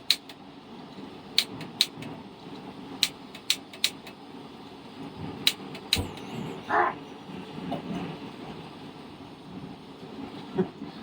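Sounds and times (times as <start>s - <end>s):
gas stove burner rushing: 1.1s - 4.4s, 5.0s - 6.7s
sharp clicks: 3.0s - 4.2s.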